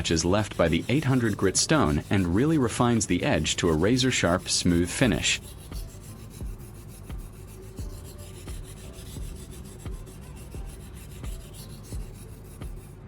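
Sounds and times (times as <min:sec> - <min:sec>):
knife rubbing on whetstone: 0:00.0 - 0:13.0.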